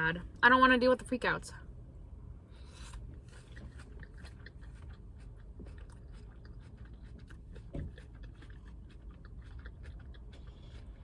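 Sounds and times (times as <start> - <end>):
low steady hum: 0.0 - 11.0
person chewing crunchy salad: 2.5 - 11.0.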